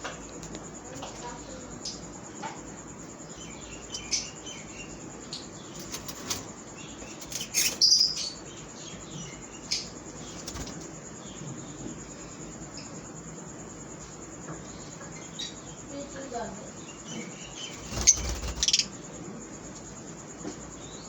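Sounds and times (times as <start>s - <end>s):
lovebirds chirping: 3.0s - 11.8s, 15.2s - 19.2s
sharp bird calls: 3.3s - 10.7s, 17.0s - 19.0s
wings flapping: 5.8s - 6.6s, 10.3s - 10.9s, 17.7s - 18.9s.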